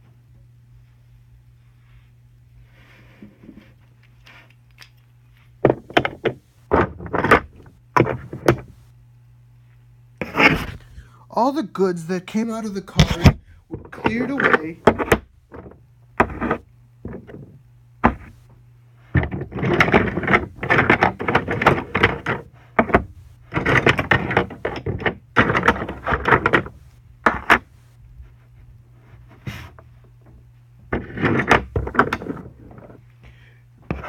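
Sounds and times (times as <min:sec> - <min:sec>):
low steady hum: 0:00.0 - 0:34.0
wooden toy trains clattering: 0:12.9 - 0:17.5.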